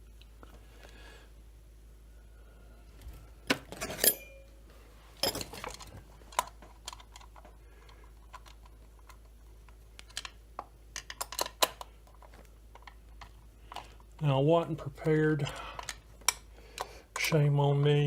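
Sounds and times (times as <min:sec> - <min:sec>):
metal tools clinking on workbench: 0:03.7 - 0:04.5, 0:05.2 - 0:05.9.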